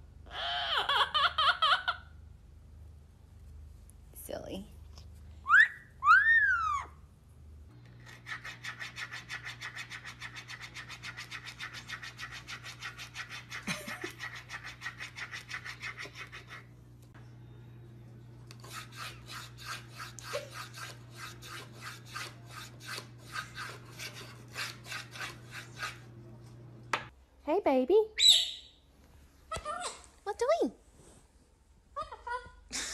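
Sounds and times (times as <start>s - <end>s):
steady low hum: 12.4s - 27.6s
rhythmic rasping scraping: 18.5s - 26.2s.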